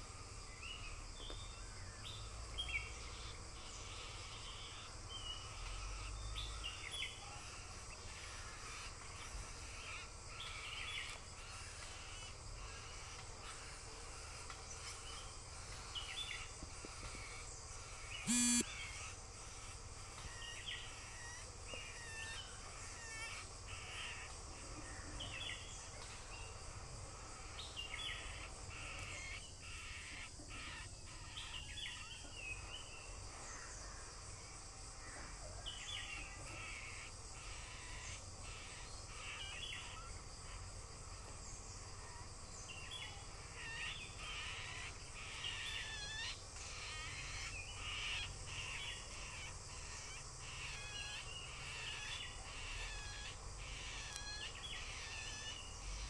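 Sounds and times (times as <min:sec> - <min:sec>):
birds calling harshly: 0:02.2 - 0:24.4.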